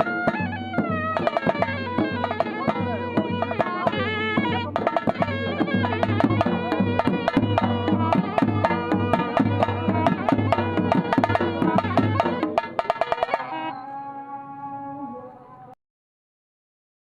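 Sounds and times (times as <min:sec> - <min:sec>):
fast drumming: 0:00.0 - 0:13.6
reedy wind instrument melody: 0:00.0 - 0:15.8.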